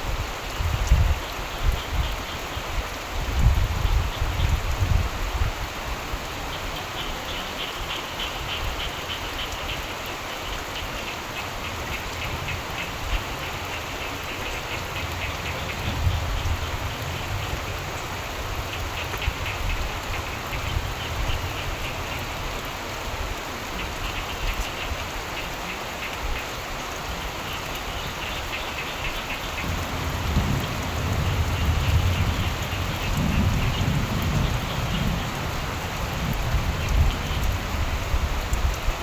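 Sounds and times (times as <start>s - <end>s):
steady rain: 0.0s - 39.0s
frogs trilling: 6.5s - 22.6s, 23.7s - 38.2s
distant thunder rumbling: 29.5s - 38.3s.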